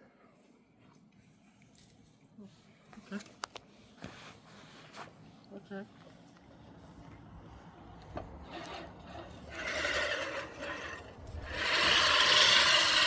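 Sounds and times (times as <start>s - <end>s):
reel mower rasping whir: 8.4s - 13.0s.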